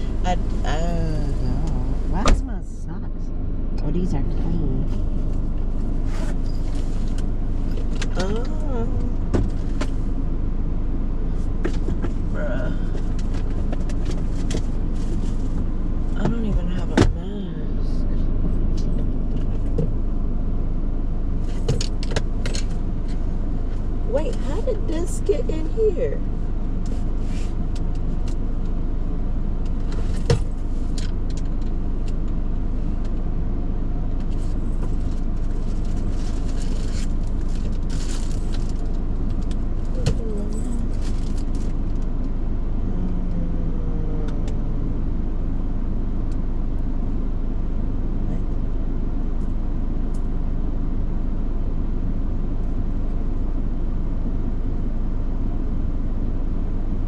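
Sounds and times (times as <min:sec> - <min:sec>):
car engine rumble inside cabin: 0:00.0 - 0:57.0.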